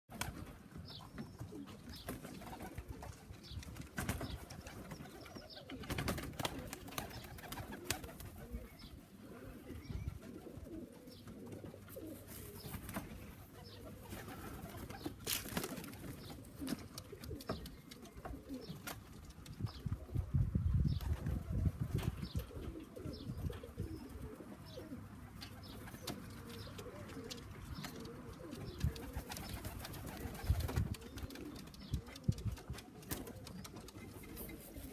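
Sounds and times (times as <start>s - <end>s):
pigeons cooing: 0.2s - 34.9s.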